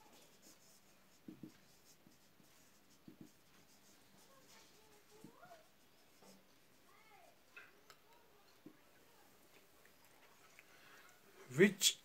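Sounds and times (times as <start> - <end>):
pen scratching on paper: 0.0 - 6.8.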